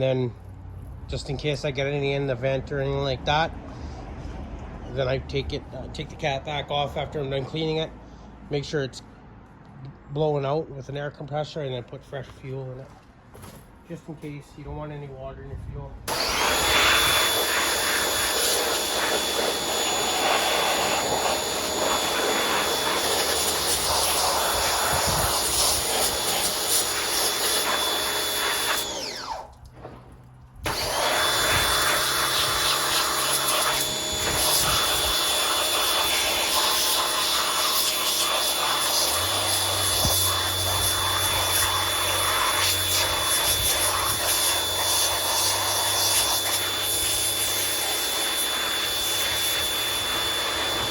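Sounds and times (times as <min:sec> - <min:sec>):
pressure washer spraying water: 0:16.1 - 0:29.6, 0:30.6 - 0:50.9
pressure washer motor whine: 0:16.1 - 0:50.9.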